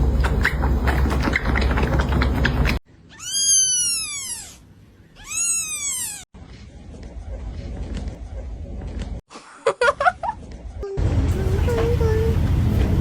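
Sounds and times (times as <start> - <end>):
kitten meowing: 3.1 - 4.6, 5.2 - 6.2.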